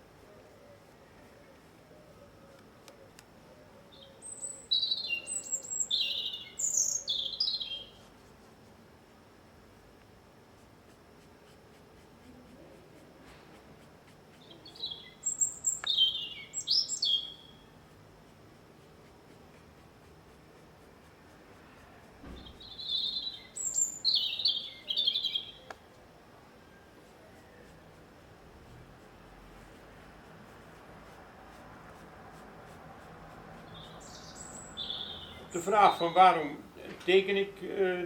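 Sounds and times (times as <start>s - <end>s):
small songbird singing: 3.9s - 8.0s, 14.4s - 17.7s, 22.4s - 25.8s, 33.7s - 36.3s.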